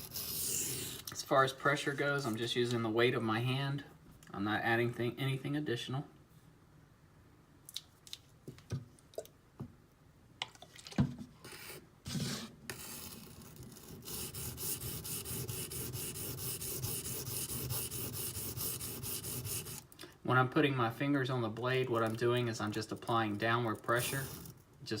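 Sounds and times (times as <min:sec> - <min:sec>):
steel blade rasping on stone: 0:12.7 - 0:19.8, 0:23.9 - 0:24.6.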